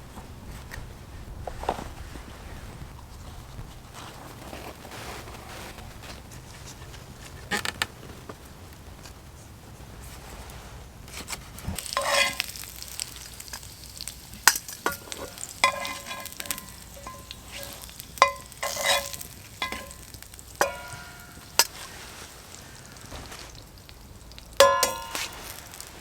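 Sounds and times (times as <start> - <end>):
food frying in a pan: 5.6 - 26.0
utensil clinking on metal pan: 11.8 - 13.6, 14.4 - 21.9, 24.6 - 26.0.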